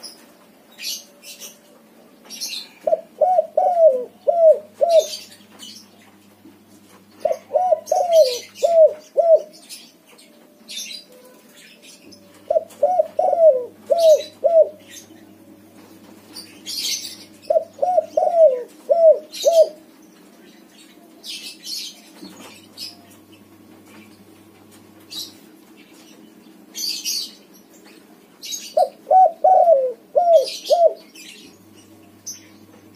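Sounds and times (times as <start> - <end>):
small birds chirping: 0.0 - 32.9
dove cooing: 2.5 - 5.4, 7.1 - 9.6, 12.1 - 15.1, 16.7 - 19.9, 28.6 - 31.7.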